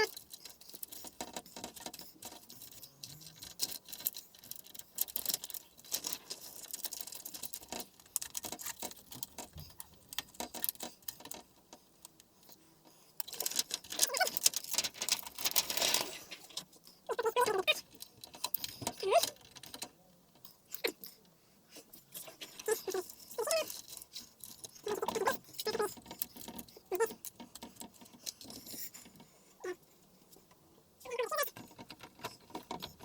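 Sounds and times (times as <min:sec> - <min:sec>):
plastic sheets clicking and tapping: 0:00.0 - 0:12.2, 0:13.2 - 0:19.9.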